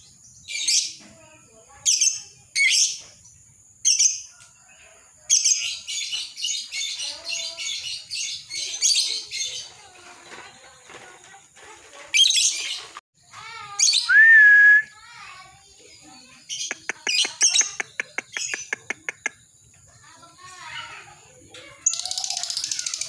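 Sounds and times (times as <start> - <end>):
lovebird chattering: 16.5 - 19.4.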